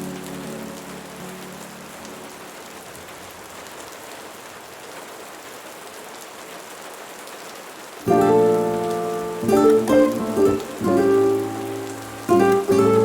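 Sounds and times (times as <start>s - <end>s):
soft music: 0.0s - 2.8s, 8.0s - 13.0s
steady rain falling: 0.0s - 13.0s.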